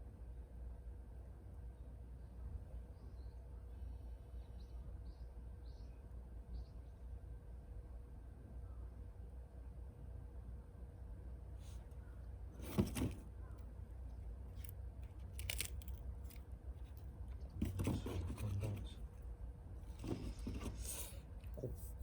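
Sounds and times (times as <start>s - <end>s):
objects being moved and set down: 12.6s - 13.3s, 14.6s - 19.0s, 19.9s - 21.2s
scraping and crunching: 14.5s - 19.2s.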